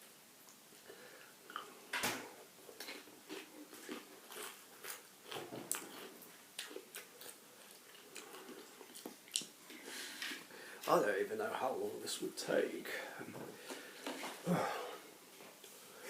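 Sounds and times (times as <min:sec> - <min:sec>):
crisps being bitten and chewed: 0:02.7 - 0:09.6.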